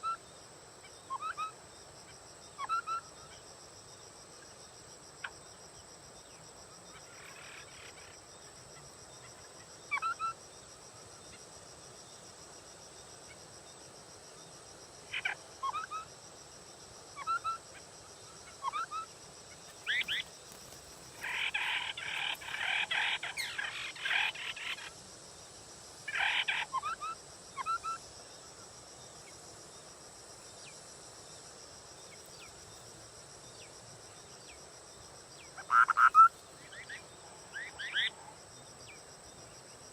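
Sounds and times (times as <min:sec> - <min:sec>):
high insect drone: 0:00.0 - 0:39.9
bird calling: 0:19.8 - 0:24.9.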